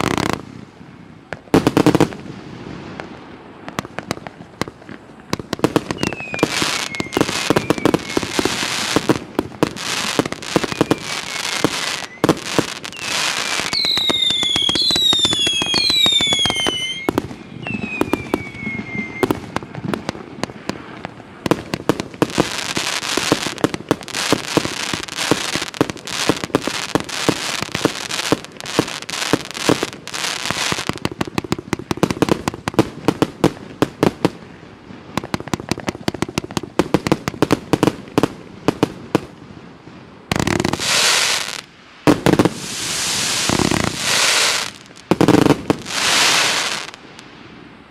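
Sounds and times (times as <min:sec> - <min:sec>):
dense firework crackling: 0:00.0 - 0:47.9
falling firework whistles: 0:05.7 - 0:20.2, 0:40.3 - 0:47.5.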